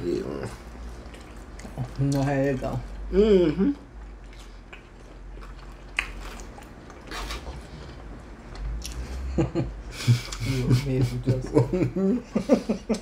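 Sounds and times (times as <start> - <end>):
person chewing food: 0.2 - 9.3.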